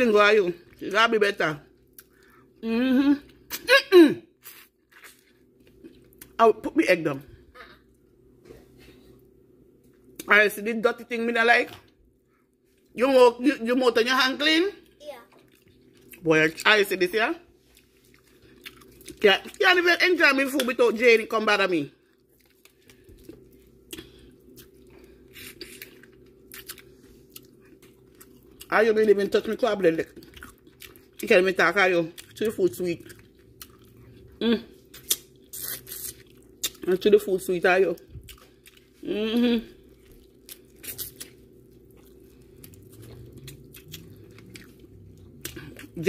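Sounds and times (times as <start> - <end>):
low steady hum: 0.0 - 46.0
wet chewing and mouth sounds: 14.8 - 16.2, 17.6 - 19.6, 22.0 - 28.7, 29.9 - 31.4, 32.1 - 36.9, 38.0 - 39.1, 39.8 - 46.0.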